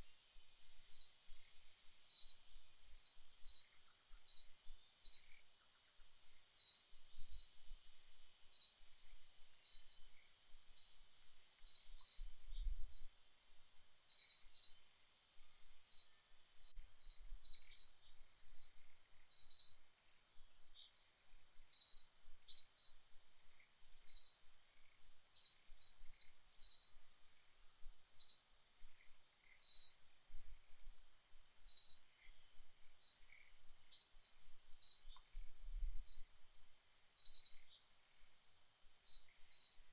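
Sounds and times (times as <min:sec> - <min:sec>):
bird chirping: 0:00.0 - 0:07.6, 0:08.5 - 0:08.8, 0:09.6 - 0:11.0, 0:11.6 - 0:13.2, 0:13.9 - 0:14.8, 0:15.8 - 0:19.8, 0:20.7 - 0:27.0, 0:27.7 - 0:30.1, 0:31.5 - 0:36.3, 0:37.2 - 0:37.9, 0:39.0 - 0:39.9
faint high hiss: 0:00.0 - 0:39.9.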